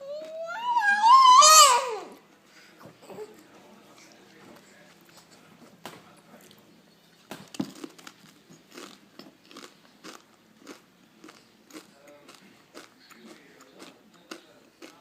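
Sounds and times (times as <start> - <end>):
crunchy food being chewed: 7.3 - 15.0.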